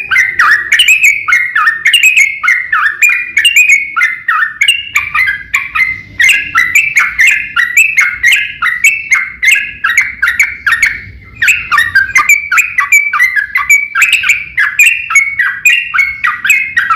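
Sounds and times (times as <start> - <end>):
bulbul singing warbled notes: 0.0 - 16.9.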